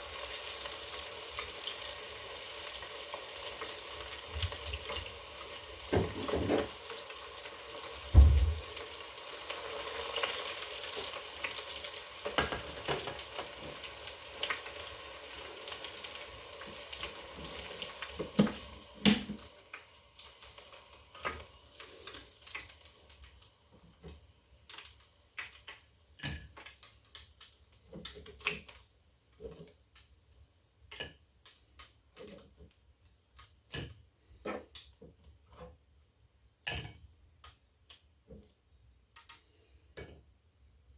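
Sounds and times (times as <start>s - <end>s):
fish sizzling in a pan: 0.0s - 35.8s
pan and utensils clinking: 5.9s - 6.8s, 12.2s - 13.8s
loud knock: 8.2s - 8.7s.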